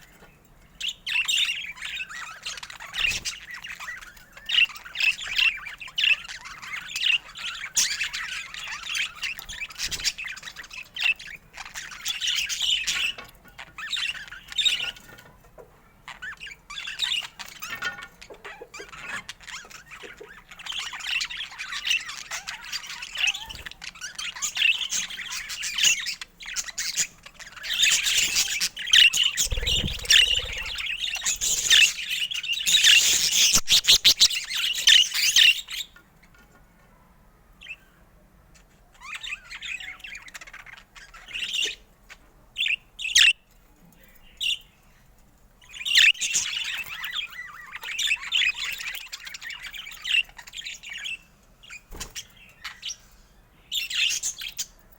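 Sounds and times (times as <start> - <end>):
budgerigars chattering: 16.1 - 35.9.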